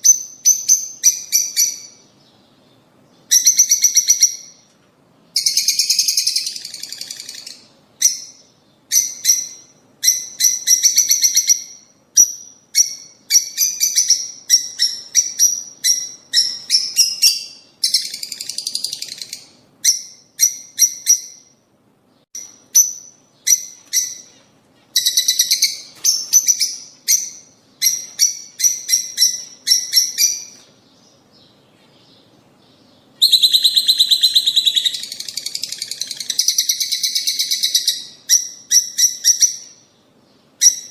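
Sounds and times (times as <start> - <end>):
lovebirds chattering: 22.4 - 40.9.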